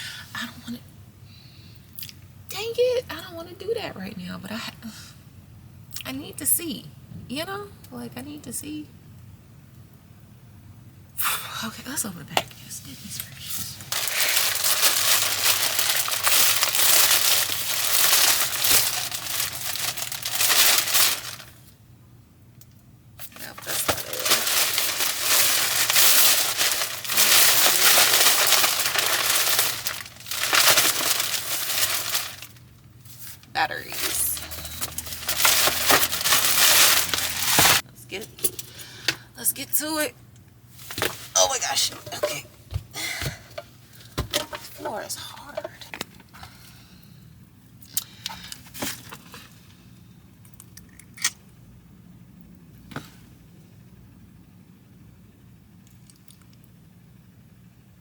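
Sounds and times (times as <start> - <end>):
packaging crinkling and tearing: 13.8 - 21.7, 23.2 - 37.8.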